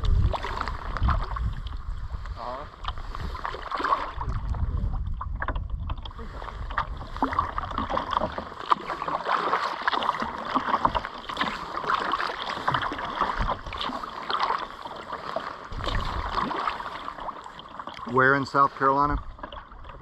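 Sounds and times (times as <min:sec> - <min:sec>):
wind on microphone: 0:00.0 - 0:08.5, 0:12.6 - 0:14.0, 0:15.7 - 0:17.0
paddle splashing in water: 0:00.0 - 0:20.0.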